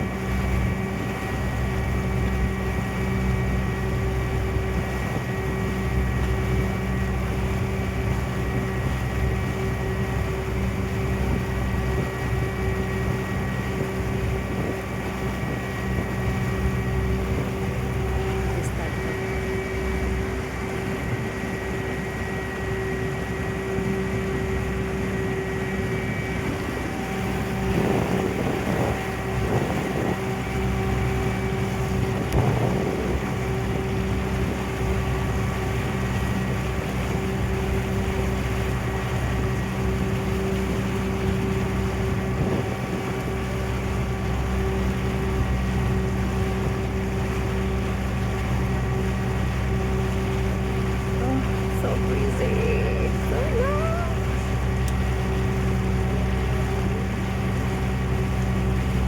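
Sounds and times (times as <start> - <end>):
ferry engine drone: 0.0 - 59.0
water noise: 0.0 - 59.0
wind on microphone: 11.0 - 19.7, 25.8 - 34.7, 41.8 - 43.5.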